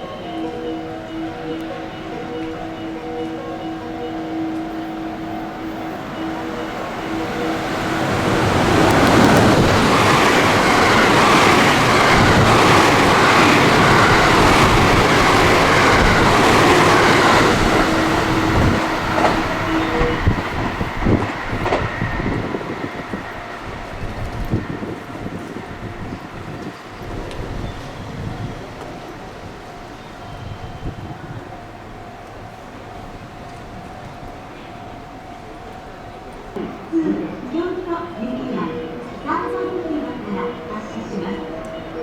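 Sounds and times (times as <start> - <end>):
train wheels rumbling on rail: 0.4 - 42.0
wheels clacking over rail joints: 6.4 - 28.0.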